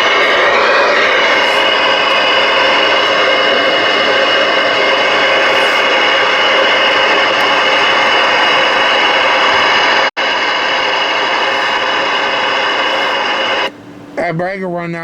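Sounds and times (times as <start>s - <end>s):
radio static: 0.0s - 14.4s.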